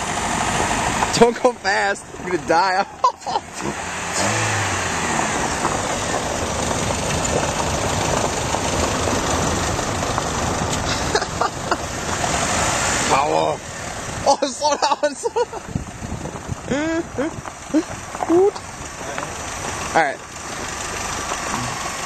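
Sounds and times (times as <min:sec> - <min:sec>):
car engine running: 0:00.0 - 0:22.0
steady rushing noise: 0:00.0 - 0:22.0.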